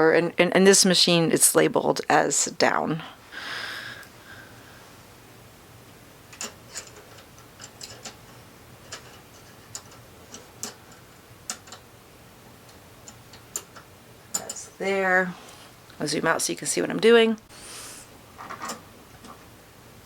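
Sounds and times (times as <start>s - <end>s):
small metal parts clicking: 6.3s - 8.2s.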